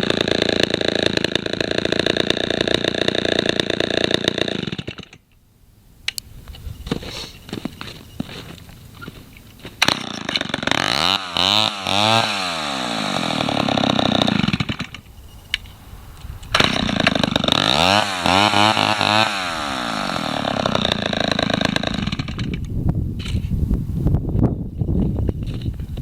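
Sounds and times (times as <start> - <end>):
chainsaw revving: 0.0 - 5.2, 9.8 - 15.0, 16.5 - 22.6.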